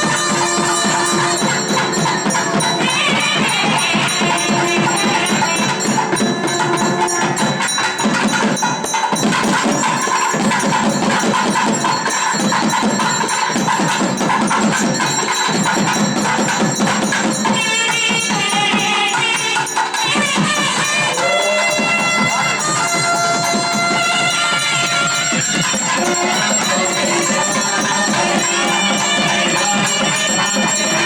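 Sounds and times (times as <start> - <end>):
reed wind instrument melody: 0.0 - 10.7, 17.4 - 31.0
drum and bell strikes: 0.0 - 31.0.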